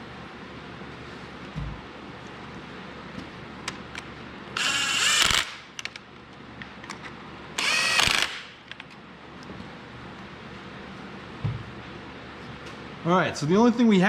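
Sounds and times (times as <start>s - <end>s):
power driver whirring: 4.6s - 5.6s, 7.6s - 8.5s.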